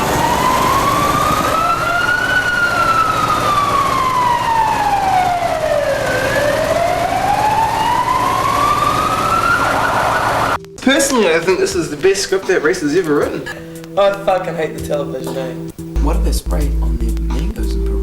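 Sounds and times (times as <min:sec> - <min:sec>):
siren wailing: 0:00.0 - 0:10.6
steady background noise: 0:00.0 - 0:14.2.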